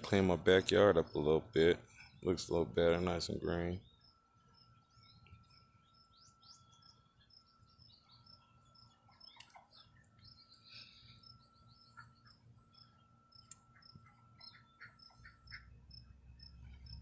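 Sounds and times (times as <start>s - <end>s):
faint bird chirps: 3.4s - 17.0s.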